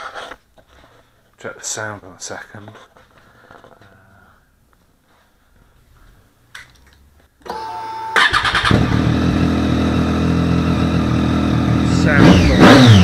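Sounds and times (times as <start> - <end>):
starter whirring: 7.4 - 10.1
motorcycle engine idling: 8.4 - 12.2.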